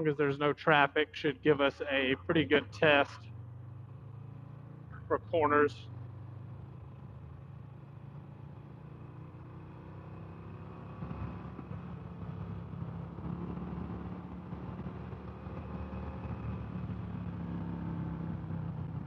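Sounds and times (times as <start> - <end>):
motorcycle engine running: 1.8 - 19.0.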